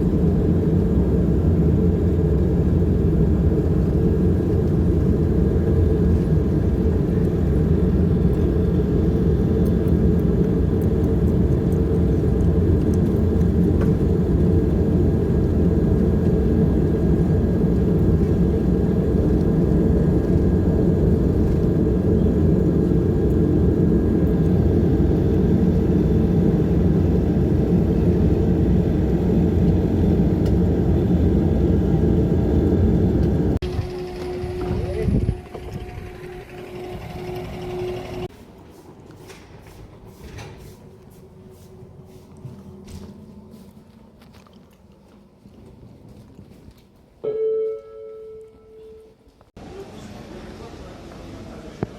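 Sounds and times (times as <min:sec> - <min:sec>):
turboprop engines droning: 0:00.0 - 0:38.3.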